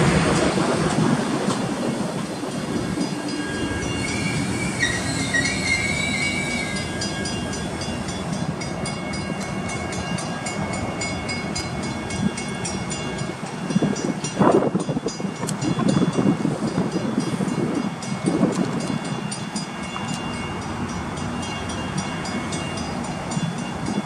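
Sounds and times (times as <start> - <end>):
train cars rolling: 0.0 - 24.0
wheel squeal: 2.8 - 7.6.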